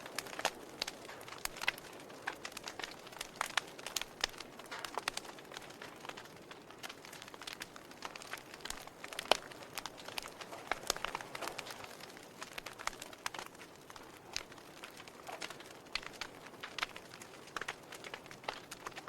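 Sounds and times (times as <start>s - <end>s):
logs crackling in fireplace: 0.0s - 19.0s
soft fire hiss: 0.0s - 19.0s.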